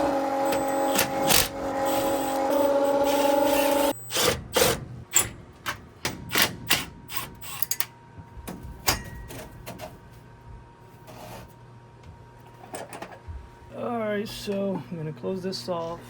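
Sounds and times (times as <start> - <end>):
small electric motor humming: 0.0 - 4.0.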